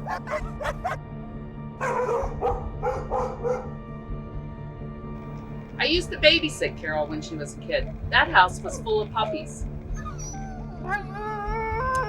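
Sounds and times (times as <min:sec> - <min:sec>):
puppies yipping and barking: 0:00.0 - 0:01.0, 0:01.8 - 0:03.6, 0:08.6 - 0:11.3
background music: 0:00.0 - 0:12.0.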